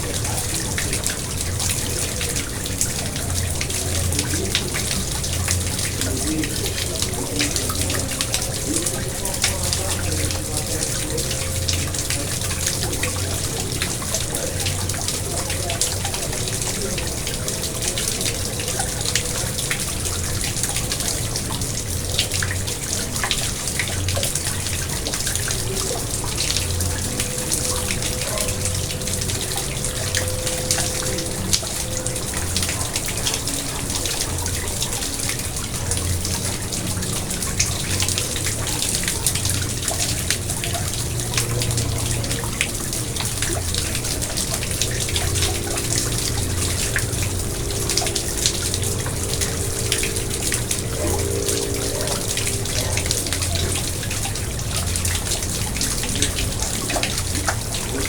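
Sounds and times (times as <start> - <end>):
pond water splashing and trickling: 0.0 - 58.0
small drips and splashes: 0.0 - 58.0.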